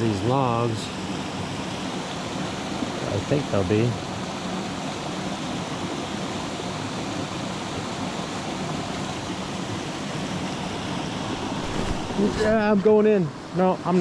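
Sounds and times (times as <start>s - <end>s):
creek water rushing: 4.0s - 13.5s.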